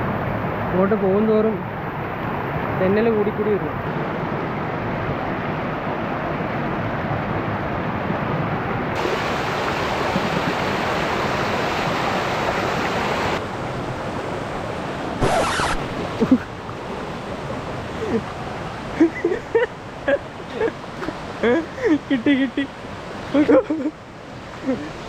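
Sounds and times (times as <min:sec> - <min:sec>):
waterfall stream rushing: 0:08.9 - 0:25.0
burst of noise: 0:15.2 - 0:16.0.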